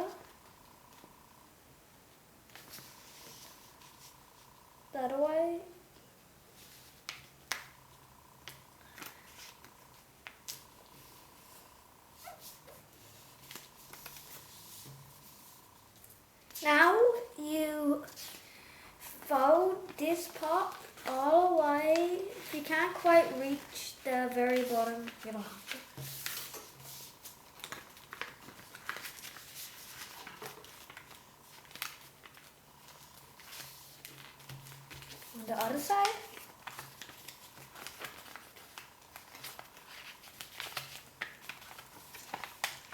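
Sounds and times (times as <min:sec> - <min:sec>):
faint steady whine: 0:00.0 - 0:42.9
paper crinkling: 0:12.2 - 0:15.6, 0:19.8 - 0:42.9.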